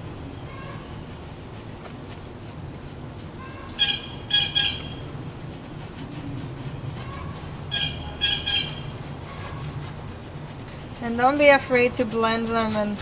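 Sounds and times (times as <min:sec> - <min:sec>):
bird short clipped calls: 0:03.5 - 0:05.0, 0:07.7 - 0:08.9.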